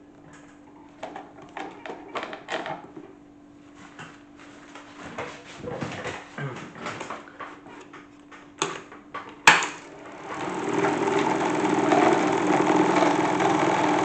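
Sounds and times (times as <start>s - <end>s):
motor hum: 9.8s - 14.0s.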